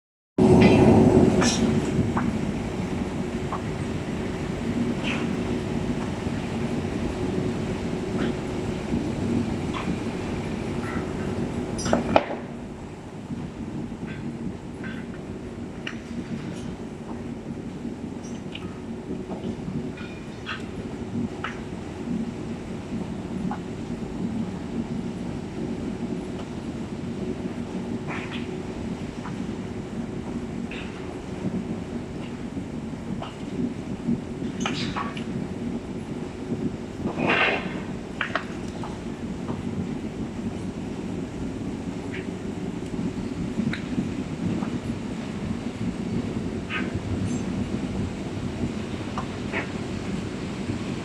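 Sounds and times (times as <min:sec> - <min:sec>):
factory machinery drone: 0:00.4 - 0:51.0.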